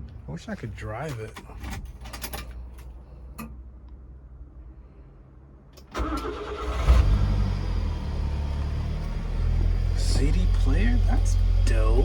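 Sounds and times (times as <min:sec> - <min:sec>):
engine cranking and idling: 0:05.8 - 0:12.0.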